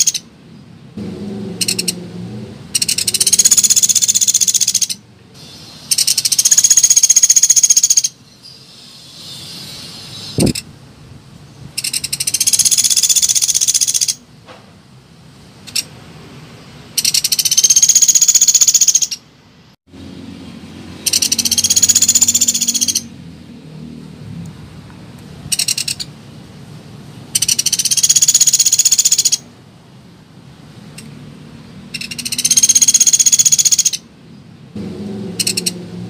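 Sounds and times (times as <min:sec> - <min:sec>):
woodpecker rattling trills: 0:00.0 - 0:00.2, 0:01.6 - 0:02.0, 0:02.7 - 0:05.0, 0:05.9 - 0:08.2, 0:11.8 - 0:14.2, 0:17.0 - 0:19.2, 0:21.0 - 0:23.1, 0:25.5 - 0:26.1, 0:27.4 - 0:29.4, 0:31.9 - 0:34.0, 0:35.4 - 0:35.8.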